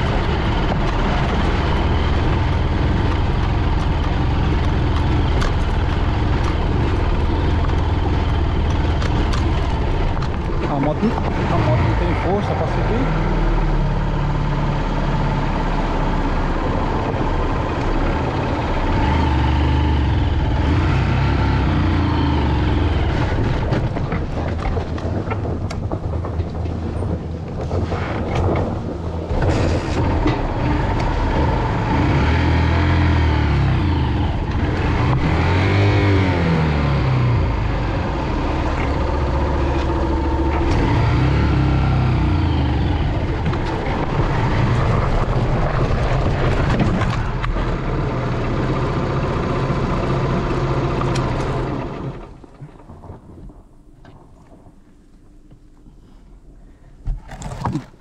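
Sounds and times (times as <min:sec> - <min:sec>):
motorcycle engine revving: 0:18.6 - 0:23.8, 0:30.3 - 0:46.2.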